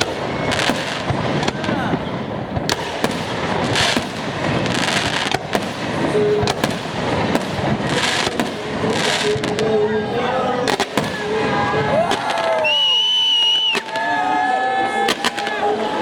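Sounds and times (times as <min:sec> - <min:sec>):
fireworks hissing bursts: 0:00.0 - 0:09.9
fireworks bangs and crackling: 0:00.0 - 0:16.0.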